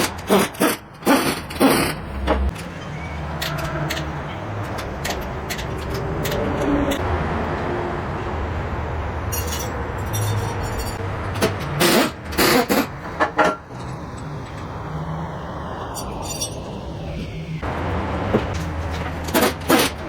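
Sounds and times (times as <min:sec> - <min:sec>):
steady low hum: 0:06.2 - 0:19.3
metal clinks and clanks: 0:09.3 - 0:14.8, 0:16.0 - 0:16.8.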